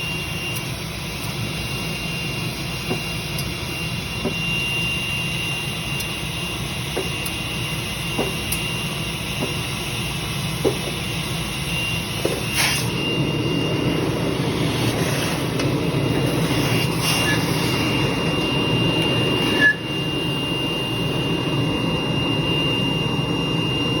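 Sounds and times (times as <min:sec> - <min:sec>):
welding drone with high whine: 0:00.0 - 0:24.0.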